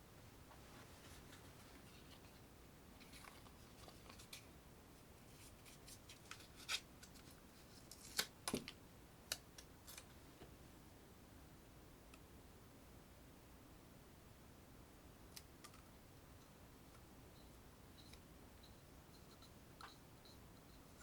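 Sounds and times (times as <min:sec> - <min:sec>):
faint handling noises: 0:00.4 - 0:10.6.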